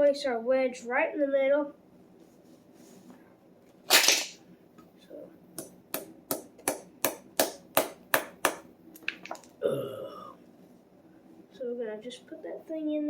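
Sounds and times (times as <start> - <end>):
hammer tapping wedge into wood: 5.6 - 8.7.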